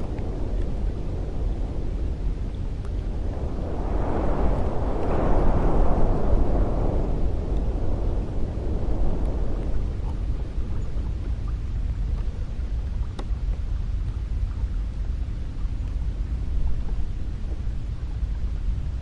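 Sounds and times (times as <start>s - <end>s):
wind rumbling: 0.0s - 19.0s
faint tick: 11.2s - 15.2s, 15.8s - 16.0s.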